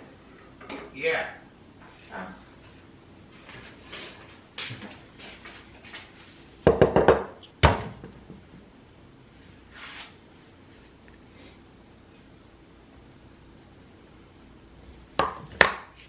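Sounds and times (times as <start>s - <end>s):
loud knocks: 6.7s - 8.5s.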